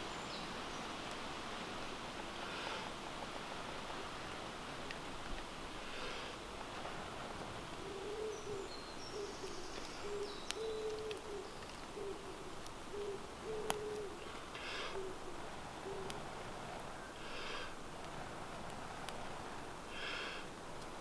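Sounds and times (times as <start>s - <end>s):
bird hooting: 7.8s - 16.2s.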